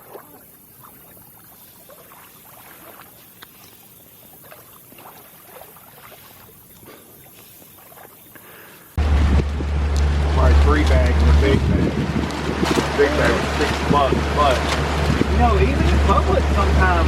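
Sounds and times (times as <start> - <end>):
small ticks and splashes: 0.0 - 9.0
water lapping: 0.0 - 17.0.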